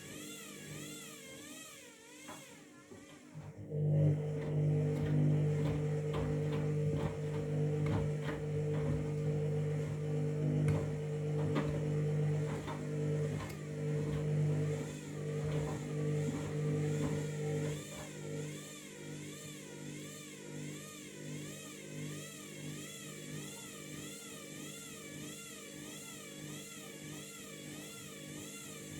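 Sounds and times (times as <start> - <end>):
washing machine hum: 2.2 - 19.4
knocks in washing machine drum: 4.4 - 18.1.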